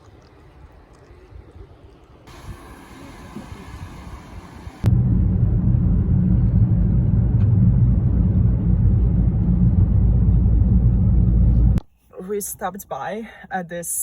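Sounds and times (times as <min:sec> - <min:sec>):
car rumbling in motion: 0:02.3 - 0:11.8.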